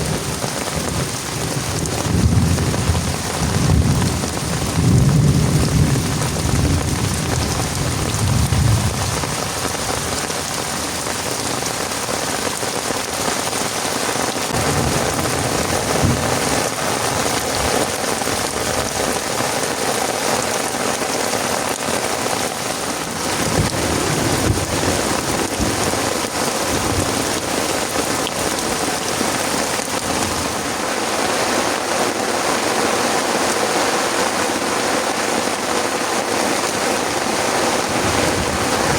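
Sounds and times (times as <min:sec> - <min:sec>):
thunder rumbling: 0:00.0 - 0:10.2, 0:14.5 - 0:19.3, 0:23.2 - 0:29.4, 0:37.8 - 0:38.9
heavy rain pouring: 0:00.0 - 0:38.9.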